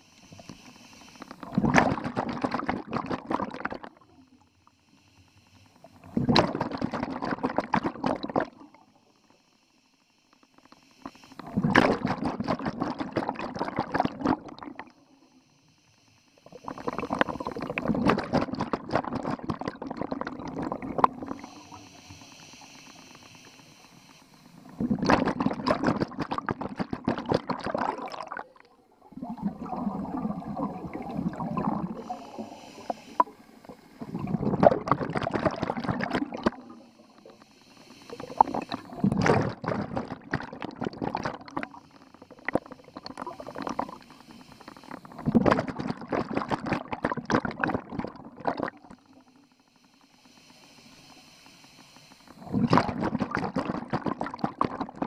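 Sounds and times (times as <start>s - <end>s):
diver breathing through regulator: 0.0s - 1.5s, 15.0s - 18.7s, 20.4s - 26.4s, 28.9s - 40.4s, 41.4s - 45.4s, 48.7s - 53.9s
diver exhaling air bubbles: 0.0s - 4.2s, 5.8s - 8.9s, 11.3s - 15.0s, 16.4s - 49.3s, 50.0s - 55.0s.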